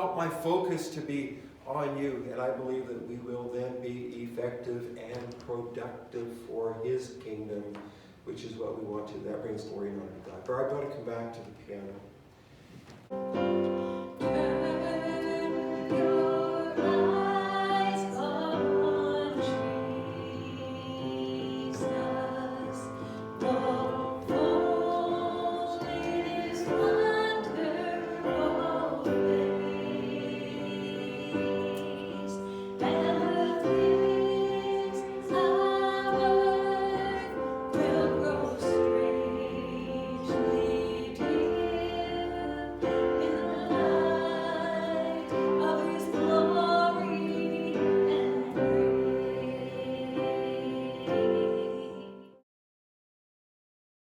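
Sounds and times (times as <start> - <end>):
piano accompaniment: 13.1 - 52.4
voices singing held notes: 13.3 - 52.3.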